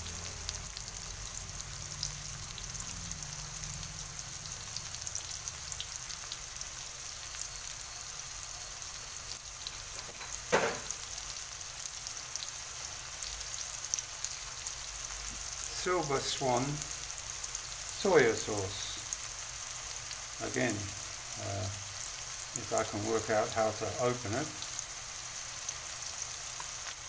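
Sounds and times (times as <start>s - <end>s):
onion and garlic sizzling: 0.0s - 27.0s
sharp knock: 10.5s - 10.9s.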